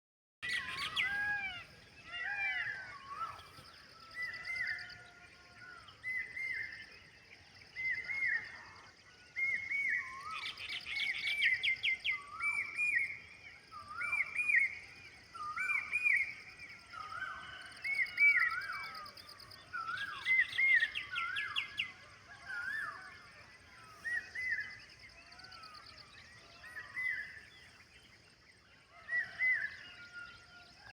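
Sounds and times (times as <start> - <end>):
birds chirping rapidly: 0.4 - 5.1.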